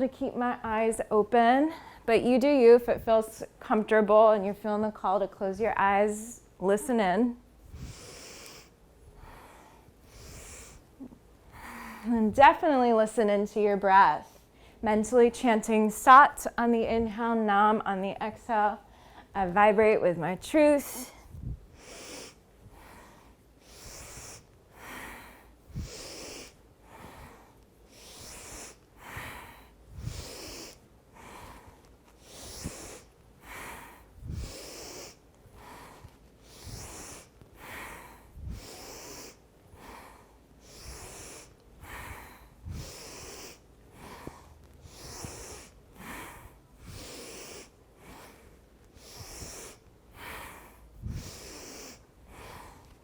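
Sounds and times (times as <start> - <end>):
woman breathing hard: 7.6 - 12.4, 18.8 - 19.3, 20.9 - 53.0.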